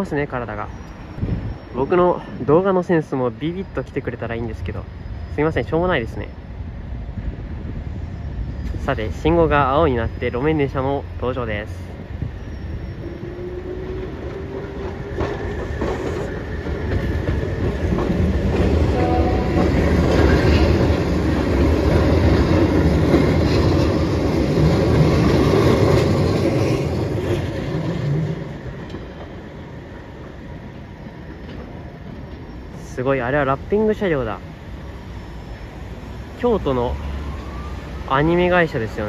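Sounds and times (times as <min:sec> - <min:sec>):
train wheels clacking over rails: 0:13.0 - 0:29.5.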